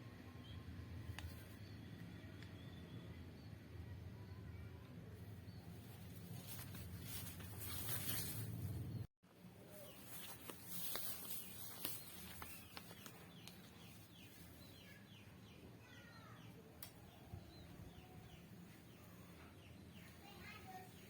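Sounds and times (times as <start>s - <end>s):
bird chirping: 5.2s - 21.0s.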